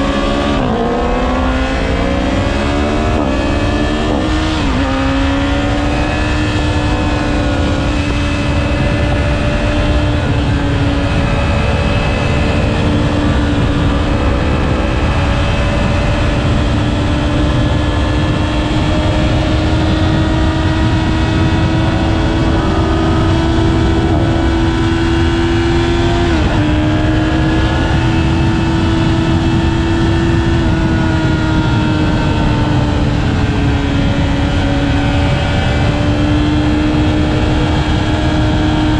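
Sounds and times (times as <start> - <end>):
motorcycle engine at high revs: 0.0 - 38.9
wind rumble: 0.0 - 38.9.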